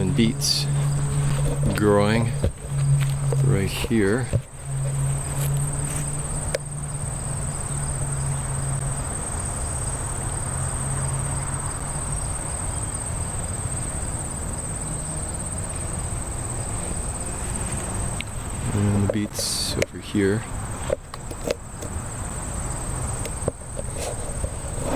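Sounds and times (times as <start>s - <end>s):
low rumbling noise: 0.0s - 9.2s
insects trilling: 0.0s - 24.9s.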